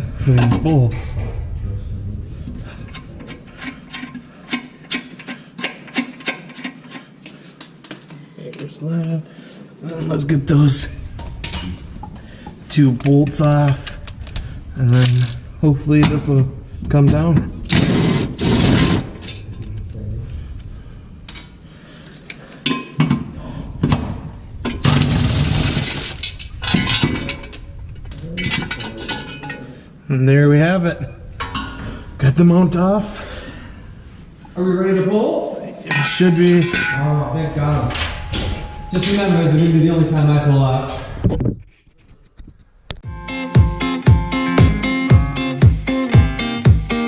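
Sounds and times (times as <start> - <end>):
metal hand tools clinking: 35.8 - 37.3.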